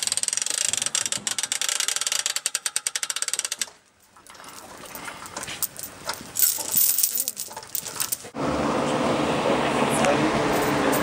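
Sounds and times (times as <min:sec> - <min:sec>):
handling noise: 0:04.0 - 0:08.4.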